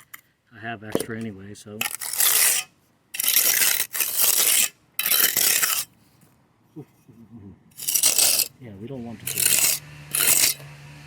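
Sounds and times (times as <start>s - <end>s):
gritty hissing of concrete work: 1.9s - 6.3s, 7.7s - 11.0s.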